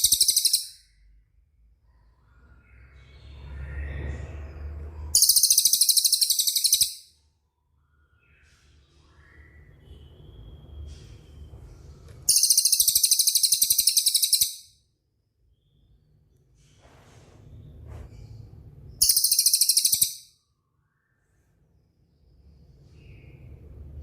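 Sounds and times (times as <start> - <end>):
songbird fast rolling trill: 0.0 - 0.8, 5.2 - 7.0, 12.3 - 14.6, 19.0 - 20.2.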